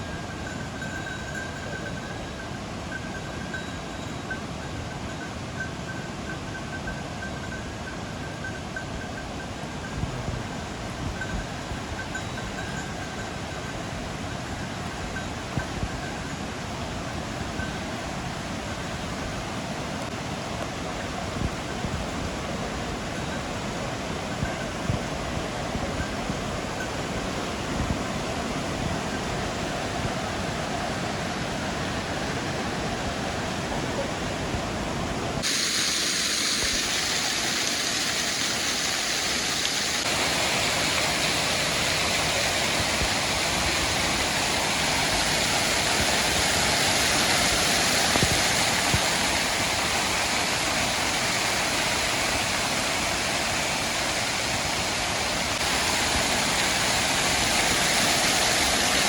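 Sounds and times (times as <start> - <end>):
waterfall rushing: 29.3 - 59.0.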